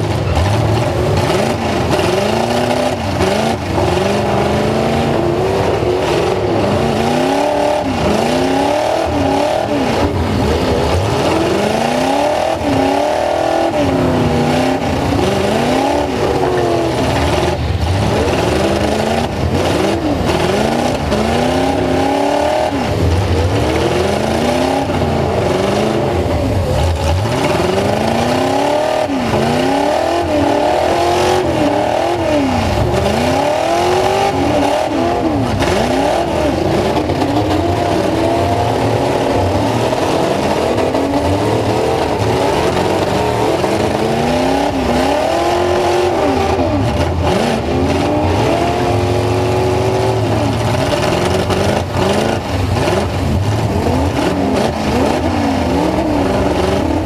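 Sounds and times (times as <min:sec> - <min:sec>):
truck engine revving hard: 0:00.0 - 0:57.0.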